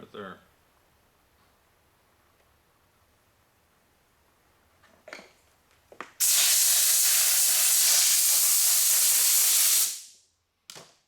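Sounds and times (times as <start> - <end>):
heat gun blower hissing: 6.2 - 10.1.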